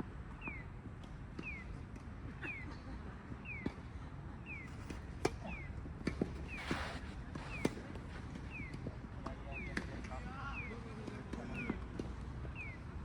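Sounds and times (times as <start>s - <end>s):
tennis balls struck and bouncing: 4.6s - 10.0s.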